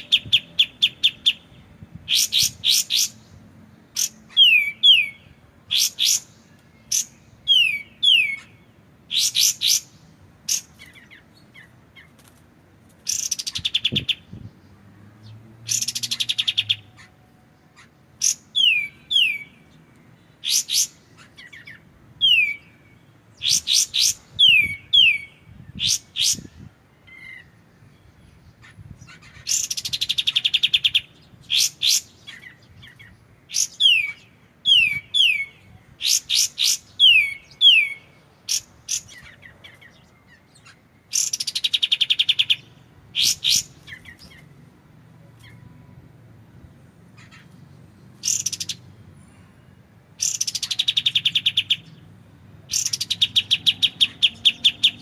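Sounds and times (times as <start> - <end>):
warbler singing trills and whistles: 0.0 - 12.3, 13.0 - 44.6, 47.1 - 55.0.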